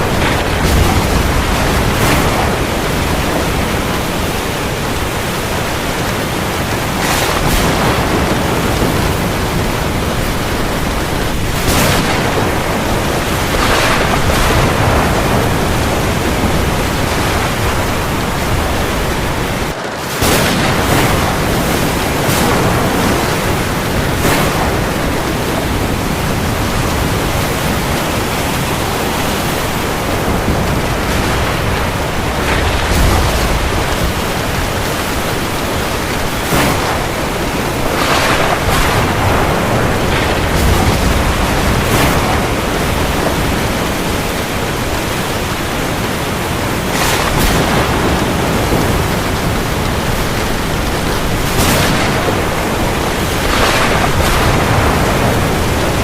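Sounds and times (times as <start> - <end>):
heavy rain on the sea: 0.0 - 56.0
sea waves: 0.0 - 56.0.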